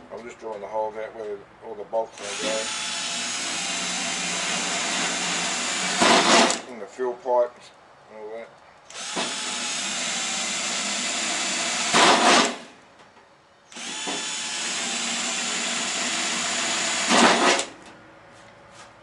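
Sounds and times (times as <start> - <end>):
electric drill boring steel: 2.2 - 6.6, 8.9 - 12.6, 13.7 - 17.7.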